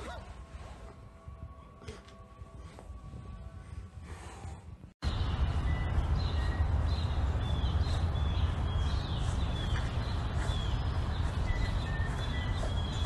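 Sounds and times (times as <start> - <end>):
steady low rumble: 0.4 - 13.0
birds chirping: 5.0 - 13.0.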